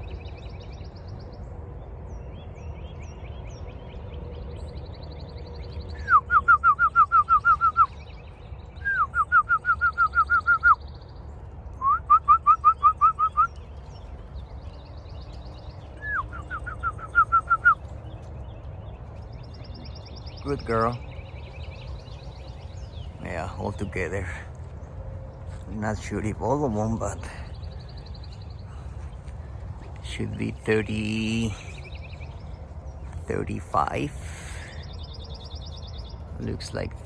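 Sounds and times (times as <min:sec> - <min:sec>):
songbird singing whistled phrases: 0:05.8 - 0:11.1, 0:11.8 - 0:18.6
faint high bird trills: 0:11.8 - 0:24.4.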